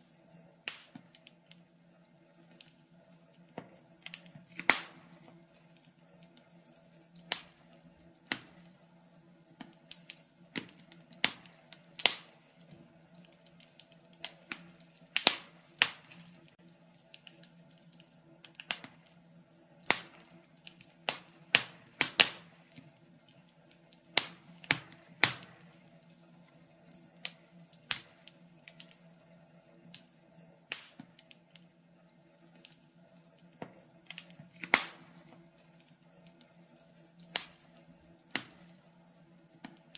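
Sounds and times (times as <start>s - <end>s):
faint steady hum: 0.0s - 39.9s
wood fire crackling and popping: 0.0s - 39.9s.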